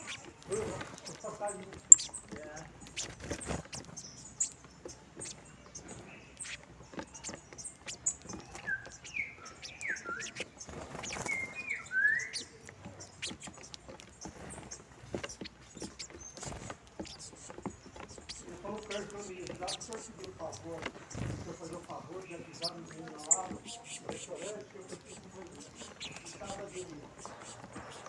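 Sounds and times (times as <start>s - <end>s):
finches chirping: 0.0s - 28.0s
light clicks and taps: 12.4s - 28.0s.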